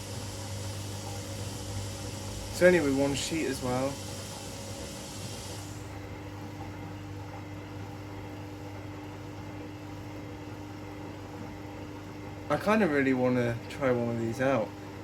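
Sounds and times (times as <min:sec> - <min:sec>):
hiss: 0:00.0 - 0:05.8
washing machines humming: 0:00.0 - 0:15.0.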